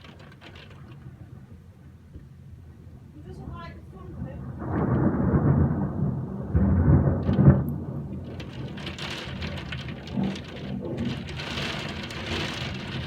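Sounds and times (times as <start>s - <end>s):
hailstones pattering: 0.0s - 1.0s, 6.5s - 13.0s
thunder rumbling: 3.2s - 13.0s.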